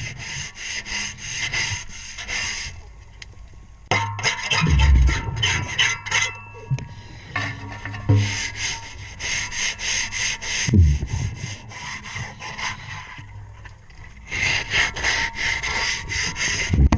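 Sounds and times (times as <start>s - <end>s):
tool scraping propeller underwater: 0.0s - 2.8s, 4.2s - 16.9s
low rumbling bursts: 4.6s - 5.8s, 10.7s - 11.6s.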